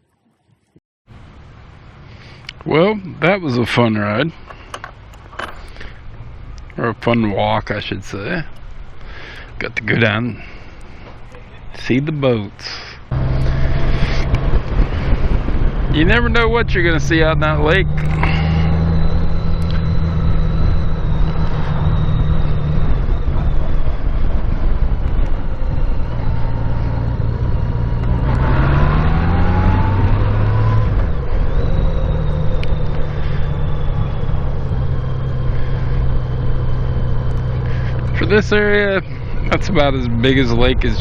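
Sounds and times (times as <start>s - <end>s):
road and wind noise: 1.1s - 41.0s
motorcycle engine running: 13.1s - 41.0s.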